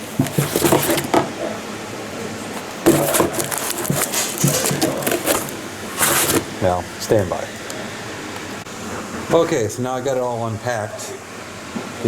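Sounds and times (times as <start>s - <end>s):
packaging rustling and crinkling: 0.0s - 1.3s, 2.5s - 6.6s.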